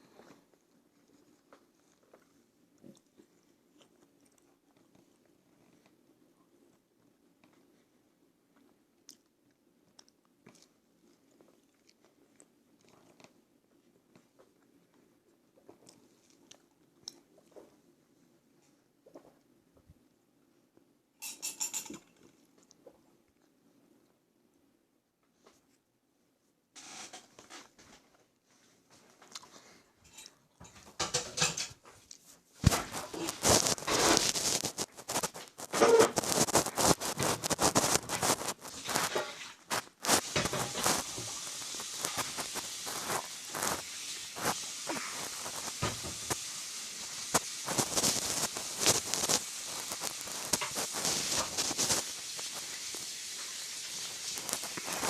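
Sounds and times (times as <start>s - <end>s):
close-up chewing food: 0.0s - 19.6s, 32.0s - 55.0s
mouth chewing food: 0.0s - 19.6s, 22.0s - 24.1s, 29.1s - 30.7s.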